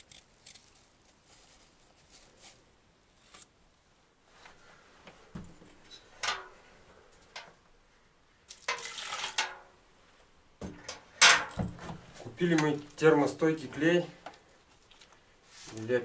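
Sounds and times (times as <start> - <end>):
dull thump: 11.5 - 12.2.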